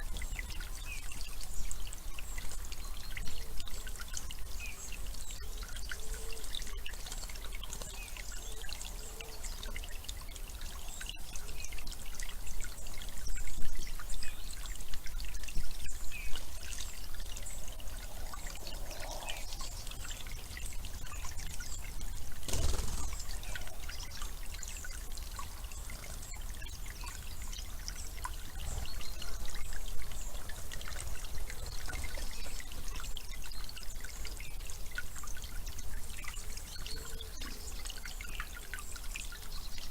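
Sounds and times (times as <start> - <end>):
shallow water trickling: 0.0 - 39.9
bird bathing splashes: 16.1 - 36.7.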